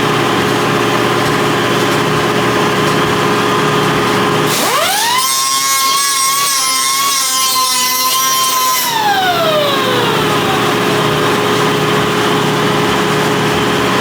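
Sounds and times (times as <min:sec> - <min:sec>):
grinder grinding metal: 0:04.0 - 0:14.0
power grinder whining: 0:04.2 - 0:14.0.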